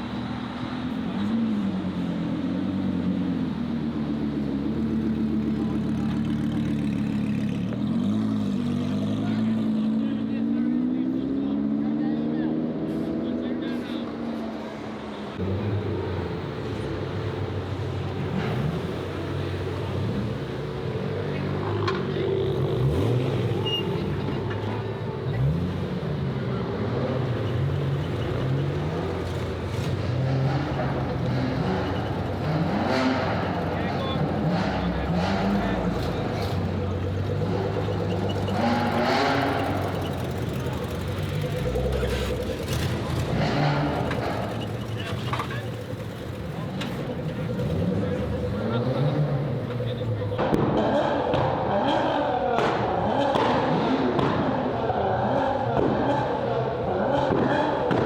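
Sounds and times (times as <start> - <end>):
car engine idling: 15.4 - 58.0.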